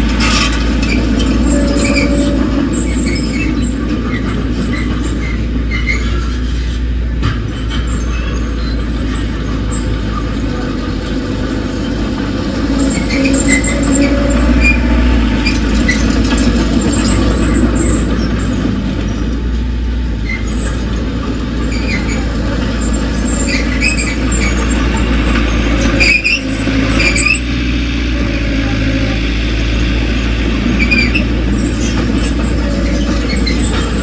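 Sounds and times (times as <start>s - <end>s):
bulldozer diesel engine rumbling: 0.0s - 34.0s
short high-pitched squeals: 0.2s - 6.7s, 11.8s - 18.1s.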